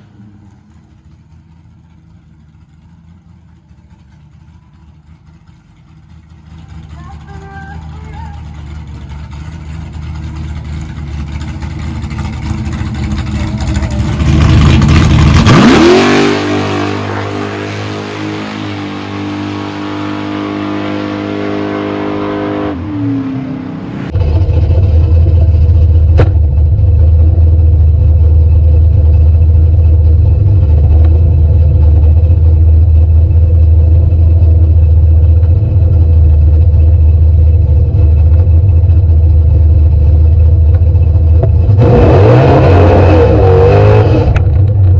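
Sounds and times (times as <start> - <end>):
car engine accelerating: 0.0 - 44.9
loud low rumble: 0.0 - 44.9.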